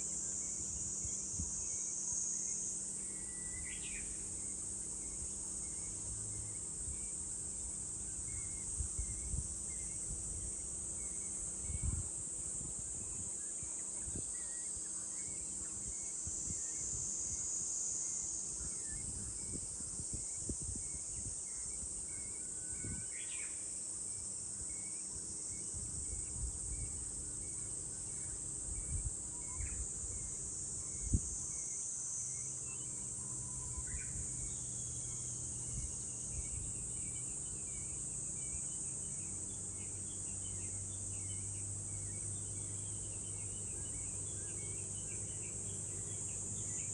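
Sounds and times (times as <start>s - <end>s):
cicadas droning: 0.0s - 46.9s
wind thumps on microphone: 18.9s - 21.8s.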